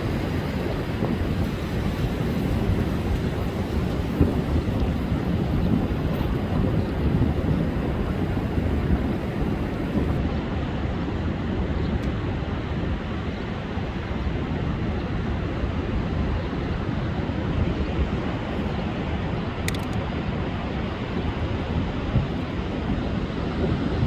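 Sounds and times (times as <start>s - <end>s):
sea surf breaking: 0.0s - 10.2s
wind rumbling on microphone: 0.0s - 24.0s.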